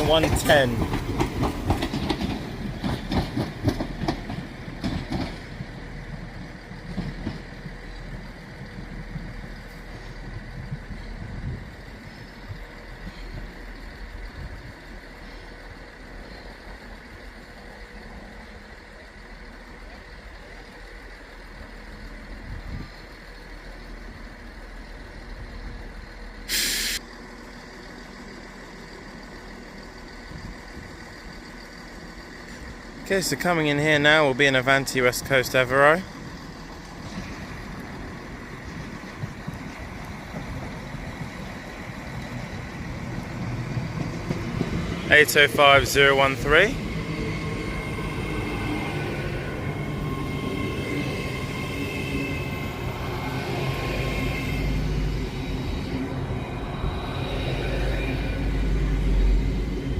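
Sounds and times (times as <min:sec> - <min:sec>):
train wheels clicking over joints: 0:00.0 - 0:26.7, 0:28.4 - 0:59.9
low steady train rumble: 0:00.0 - 0:59.9
air brake hissing: 0:26.5 - 0:27.0.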